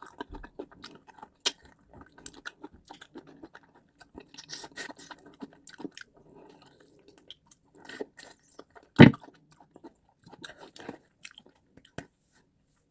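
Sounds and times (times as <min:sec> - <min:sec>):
chewing and mouth sounds: 0:00.0 - 0:12.2.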